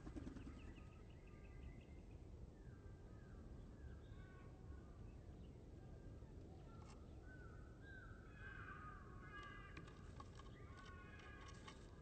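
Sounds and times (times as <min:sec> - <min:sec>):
distant bird calls: 0:00.0 - 0:01.6.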